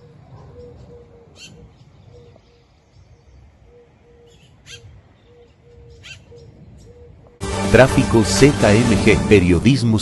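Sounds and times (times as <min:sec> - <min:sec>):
small bird chirps: 0:00.0 - 0:07.1
bird hooting low notes: 0:00.0 - 0:07.4.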